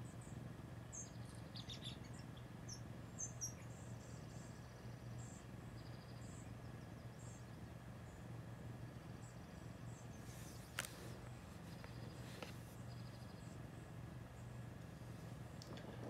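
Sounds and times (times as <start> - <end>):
low steady hum: 0.0 - 16.0
small birds chirping: 0.0 - 16.0.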